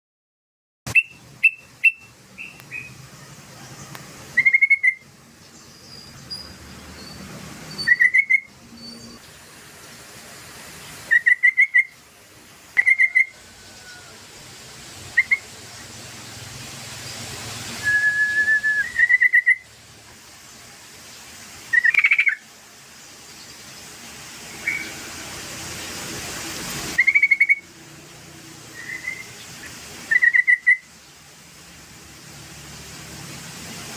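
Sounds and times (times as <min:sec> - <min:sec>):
bulbul whistled song: 0:00.9 - 0:03.0, 0:03.8 - 0:09.3, 0:11.0 - 0:12.0, 0:12.8 - 0:14.1, 0:15.1 - 0:15.5, 0:17.7 - 0:19.7, 0:21.7 - 0:22.4, 0:24.5 - 0:25.1, 0:27.0 - 0:27.7, 0:28.7 - 0:30.9.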